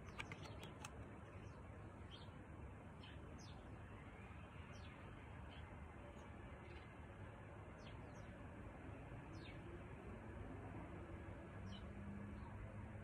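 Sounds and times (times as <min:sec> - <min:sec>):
soft clicks: 0:00.0 - 0:01.1
faint songbird chirps: 0:00.0 - 0:05.8
low background noise: 0:00.0 - 0:13.0.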